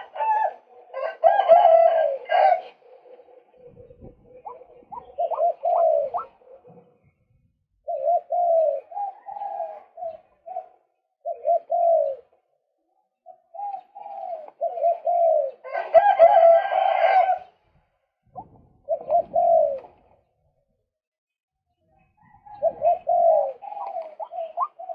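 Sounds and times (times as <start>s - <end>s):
waterhen calling: 23.1s - 24.9s.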